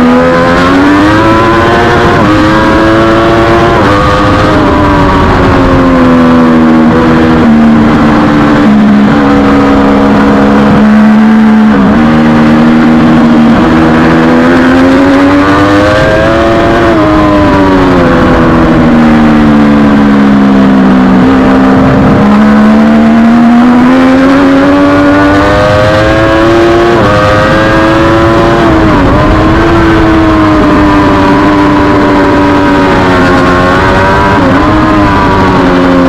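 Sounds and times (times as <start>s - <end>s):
motorcycle engine racing through gears: 0.0s - 36.0s.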